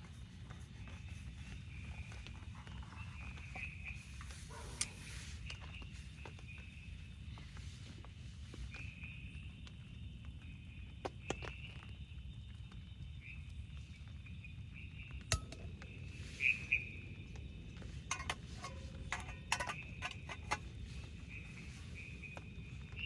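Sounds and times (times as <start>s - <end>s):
light clicks and clinks: 15.3s - 15.9s, 17.8s - 21.2s.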